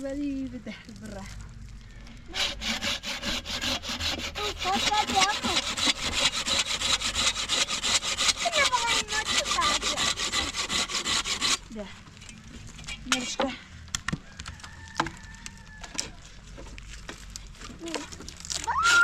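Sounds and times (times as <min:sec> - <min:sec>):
fast rasping strokes: 0:02.3 - 0:11.6.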